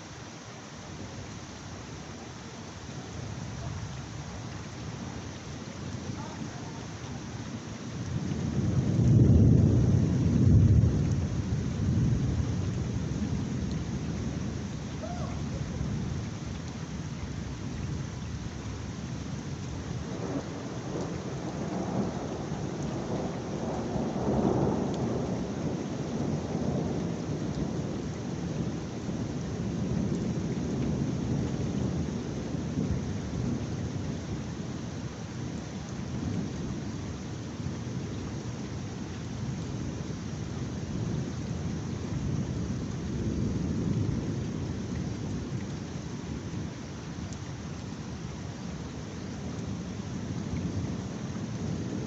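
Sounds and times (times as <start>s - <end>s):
heavy rain falling: 0.0s - 52.0s
thunder rolling: 8.1s - 14.1s.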